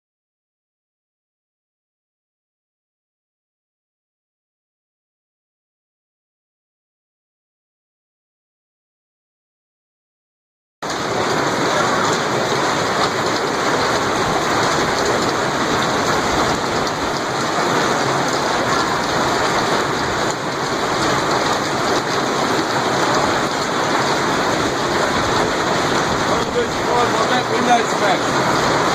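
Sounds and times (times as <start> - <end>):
hail and rain pelting down: 10.8 - 28.9.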